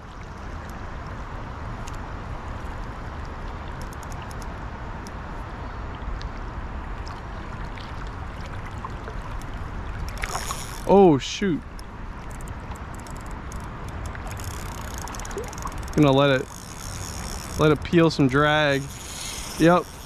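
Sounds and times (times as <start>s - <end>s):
faint light ticks: 1.8s - 2.1s
river current rushing: 9.9s - 20.0s.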